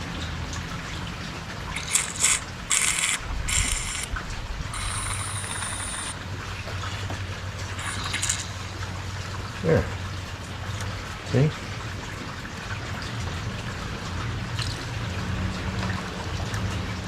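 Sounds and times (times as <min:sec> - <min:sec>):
compressed air hissing blasts: 0:01.8 - 0:04.1, 0:04.8 - 0:06.2.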